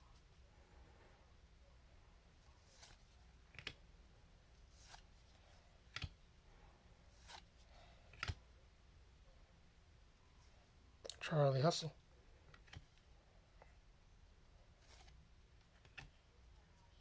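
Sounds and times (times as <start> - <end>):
trading cards flipping: 2.6 - 3.8, 4.7 - 5.1, 7.2 - 7.5, 8.1 - 8.4, 14.8 - 16.2.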